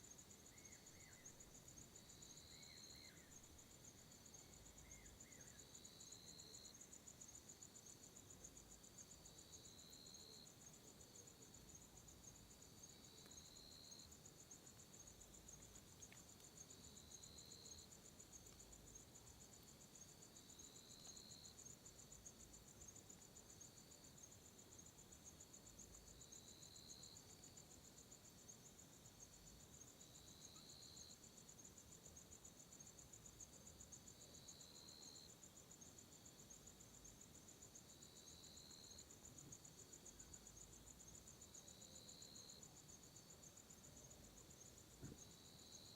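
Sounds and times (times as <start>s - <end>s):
low insect chirping call: 0.0s - 45.9s.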